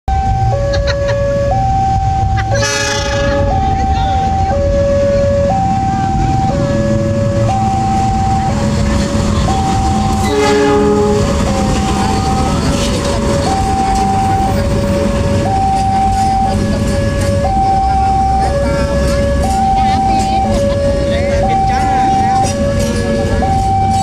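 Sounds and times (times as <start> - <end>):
diesel train rumbling: 0.1 - 24.0
two-tone level crossing alarm: 0.1 - 24.0
locomotive horn: 2.2 - 24.0.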